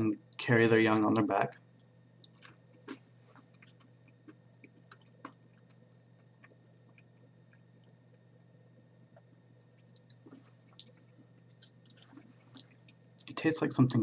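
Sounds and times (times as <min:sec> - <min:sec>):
chewing clicks: 0:02.2 - 0:08.2, 0:09.1 - 0:13.3.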